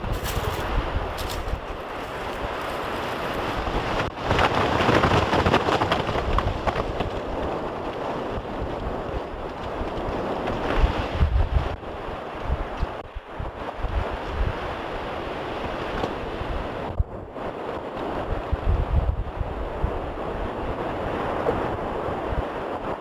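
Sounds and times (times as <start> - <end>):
low wind thumps: 0.0 - 4.2
wind buffeting microphone: 0.0 - 23.0.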